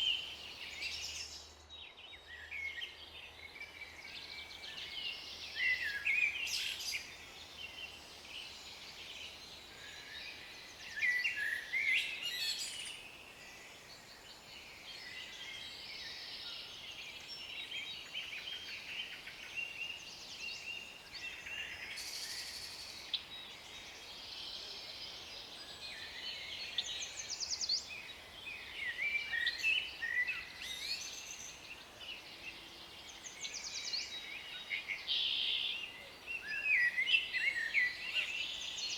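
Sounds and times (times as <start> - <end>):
faint background hiss: 0.0 - 38.9
songbirds chirping and trilling: 0.0 - 38.9.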